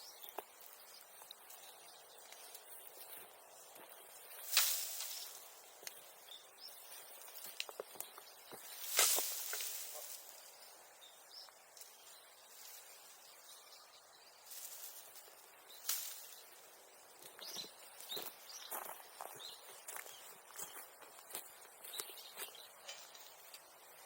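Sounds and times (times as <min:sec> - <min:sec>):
bamboo grass rustling: 0:00.1 - 0:24.0
stems clicking and snapping: 0:00.2 - 0:06.1, 0:07.2 - 0:10.4, 0:15.8 - 0:16.4.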